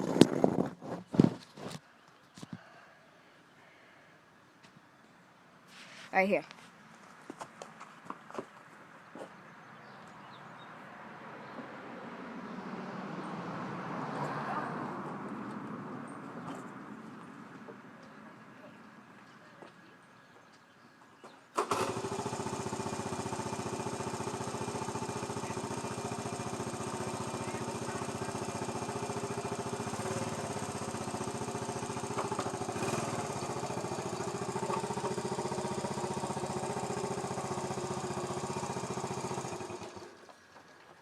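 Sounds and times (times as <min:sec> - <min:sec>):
small engine starting and running: 0:21.6 - 0:40.9.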